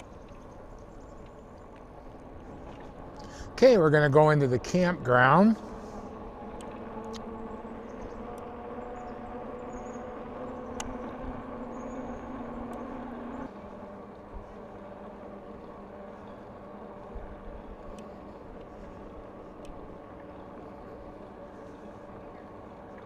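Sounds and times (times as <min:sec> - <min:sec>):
faint clicks: 0:00.0 - 0:03.4, 0:06.6 - 0:07.3, 0:10.6 - 0:11.2, 0:11.9 - 0:13.4, 0:17.8 - 0:20.7
bicycle hum: 0:00.0 - 0:23.0
wind rumble on microphone: 0:00.0 - 0:23.0.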